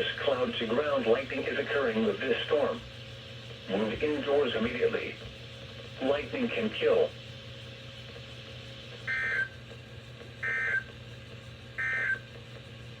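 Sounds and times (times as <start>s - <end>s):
steady low hum: 0.0s - 13.0s
screeching digital data bursts: 9.1s - 9.5s, 10.4s - 10.8s.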